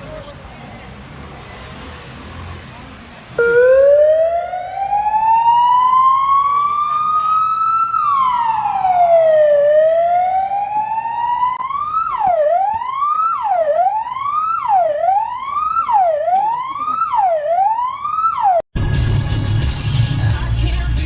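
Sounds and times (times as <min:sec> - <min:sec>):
emergency vehicle siren wailing: 0:03.4 - 0:18.7.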